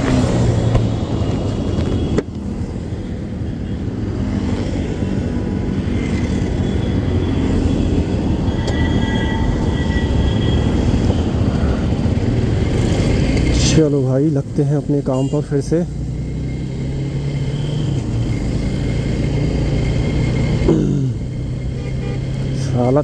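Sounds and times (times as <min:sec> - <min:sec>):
wind and road noise: 0:00.0 - 0:23.0
motorcycle engine running: 0:10.3 - 0:14.0.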